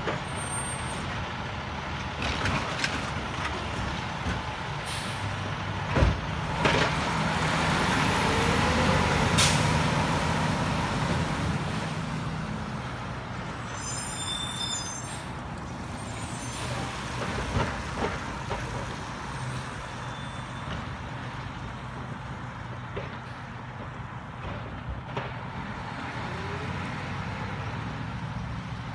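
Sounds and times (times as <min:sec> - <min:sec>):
garbage truck diesel engine: 0:00.0 - 0:28.9
air brake hiss: 0:04.8 - 0:05.4, 0:09.4 - 0:09.7
high squeal: 0:13.4 - 0:17.2, 0:19.4 - 0:20.7.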